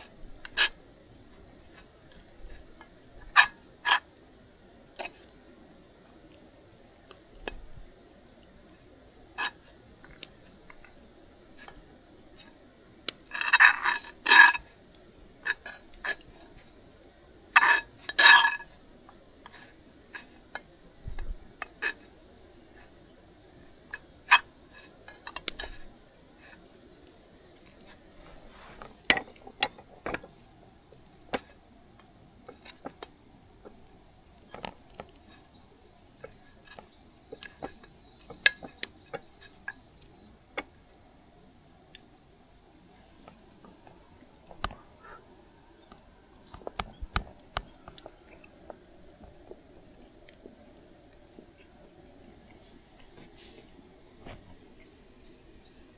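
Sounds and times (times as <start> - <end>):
camp cookware clinking: 13.1 - 14.6, 17.5 - 18.8, 23.7 - 25.8, 27.6 - 31.7, 32.4 - 40.8.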